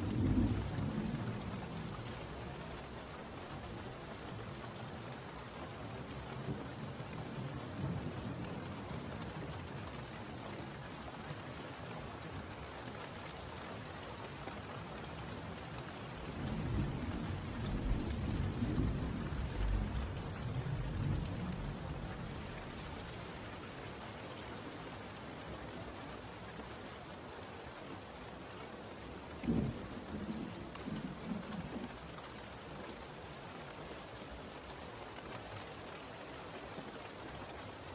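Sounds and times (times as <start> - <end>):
steady rain: 0.0 - 37.9
thunder rumble: 16.5 - 23.2.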